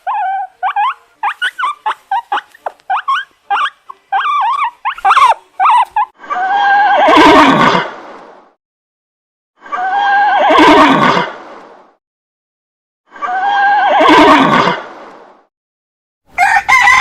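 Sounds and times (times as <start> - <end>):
dog yelping and whimpering: 0.0 - 7.2
horse neighing: 6.4 - 7.9, 9.8 - 11.3, 13.3 - 14.8.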